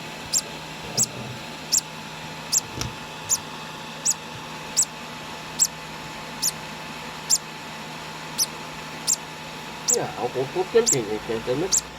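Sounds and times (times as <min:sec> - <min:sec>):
chick peeping: 0:00.3 - 0:01.9, 0:02.5 - 0:02.7, 0:04.0 - 0:04.9, 0:06.4 - 0:06.6, 0:07.2 - 0:07.4, 0:08.4 - 0:09.2, 0:09.8 - 0:10.2, 0:10.8 - 0:11.9.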